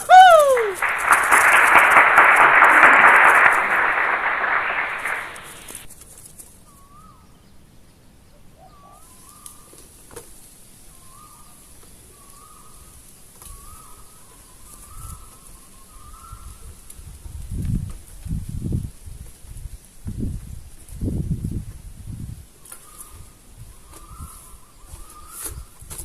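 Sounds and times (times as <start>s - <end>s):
loud rushing noise: 0.8s - 5.9s.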